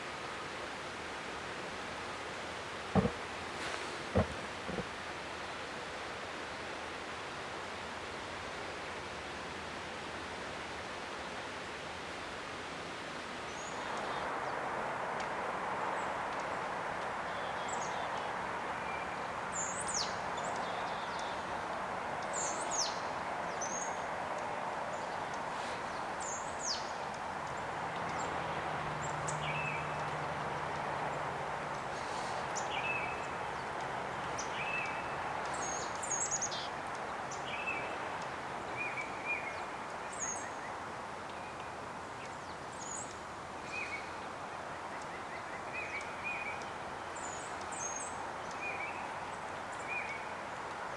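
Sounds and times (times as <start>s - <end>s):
small birds calling: 3.0s - 4.9s.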